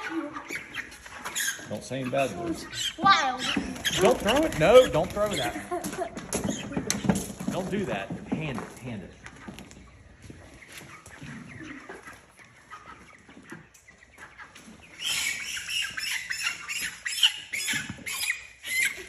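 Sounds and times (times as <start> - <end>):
chickens squawking: 0.0 - 7.4, 9.2 - 19.0
chickens scuffling: 0.0 - 19.0
wings flapping: 3.4 - 5.8.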